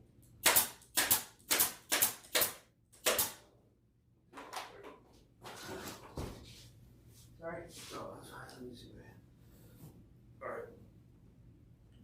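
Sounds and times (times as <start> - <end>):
staple gun firing: 0.4 - 3.4
faint scuffs: 5.5 - 8.1.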